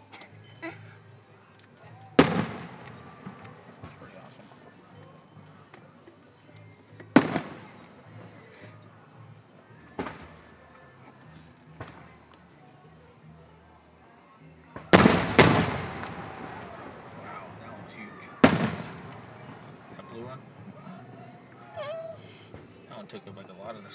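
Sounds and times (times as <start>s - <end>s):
fireworks bursting with bangs: 2.2s - 4.4s, 7.0s - 8.6s, 9.9s - 10.6s, 11.8s - 12.4s, 14.8s - 22.9s.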